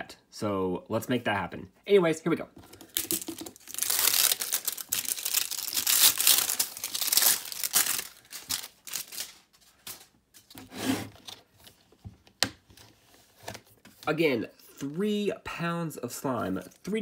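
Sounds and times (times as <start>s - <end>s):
plastic crinkling: 2.7s - 10.1s
plastic packaging tearing: 2.9s - 10.0s.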